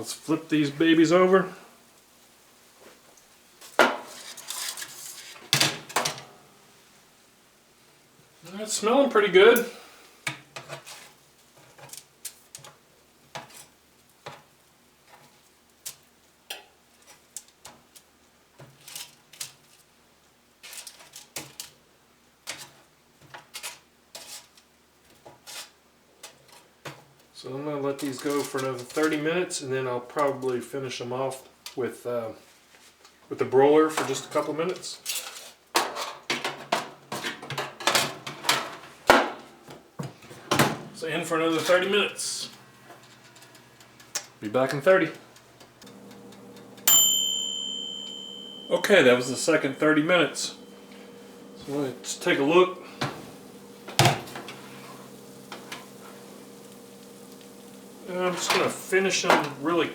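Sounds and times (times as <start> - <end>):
metal baking sheet clattering: 35.1 - 39.4, 58.1 - 59.9
utensil tapping baking sheet: 47.9 - 59.7.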